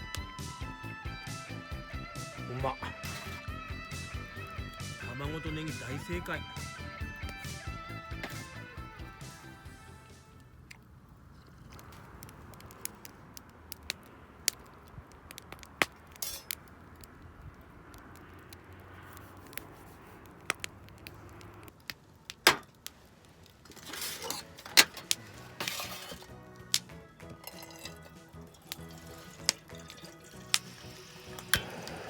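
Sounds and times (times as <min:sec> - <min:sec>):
clattering: 0:23.6 - 0:28.7
chopsticks clinking metal cup: 0:27.4 - 0:30.7.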